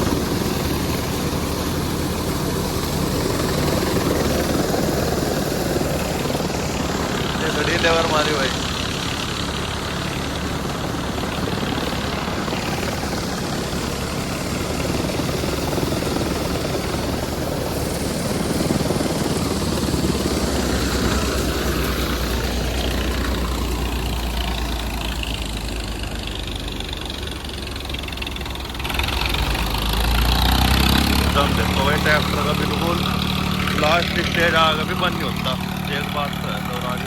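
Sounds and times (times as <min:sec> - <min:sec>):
diesel tractor engine running hard: 0:00.0 - 0:37.0
thresher mechanical noise: 0:28.8 - 0:37.0.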